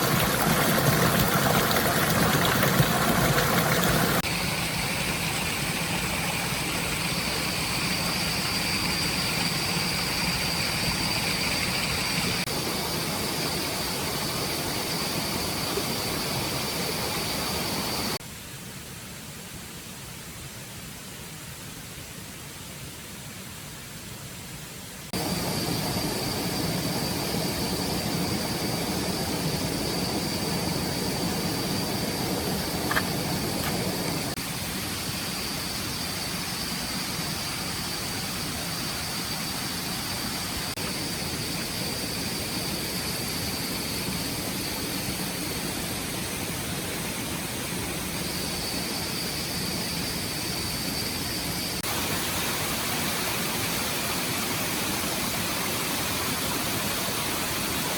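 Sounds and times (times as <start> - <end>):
stream water rushing: 0.0 - 18.2, 25.2 - 41.4, 51.8 - 57.9.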